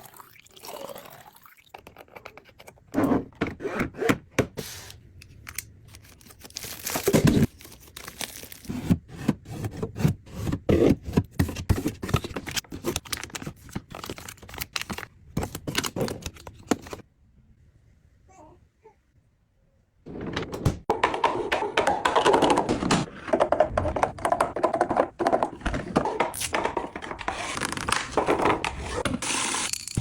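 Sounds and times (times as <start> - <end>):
packaging crinkling: 6.0 - 8.7
packaging tearing: 6.0 - 8.7.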